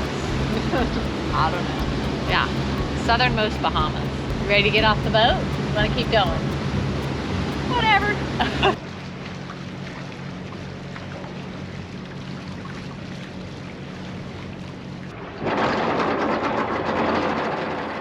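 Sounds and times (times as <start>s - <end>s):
rushing noise: 0.0s - 9.5s
boat engine humming: 0.0s - 15.1s.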